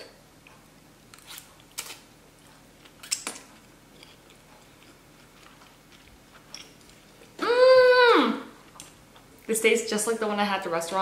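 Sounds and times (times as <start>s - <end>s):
person chewing noodles: 1.2s - 7.4s.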